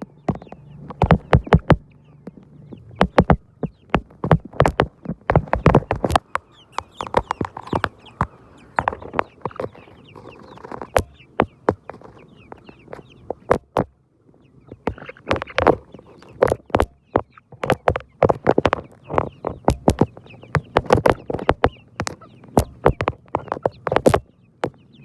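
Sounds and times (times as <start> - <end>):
sharp irregular clicks and taps: 0.0 - 9.8
chickens clucking: 0.0 - 25.0.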